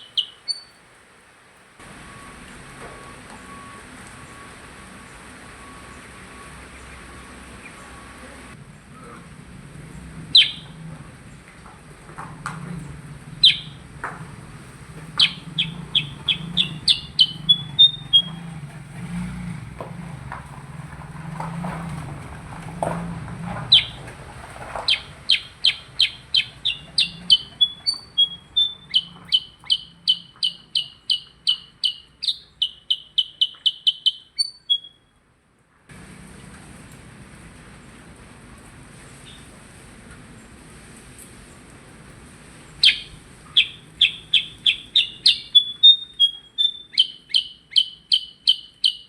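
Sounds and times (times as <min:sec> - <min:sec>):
songbird singing: 0:00.0 - 0:01.0, 0:02.0 - 0:09.2, 0:09.8 - 0:23.0, 0:23.6 - 0:35.1, 0:42.7 - 0:49.0
low hum: 0:01.8 - 0:30.9.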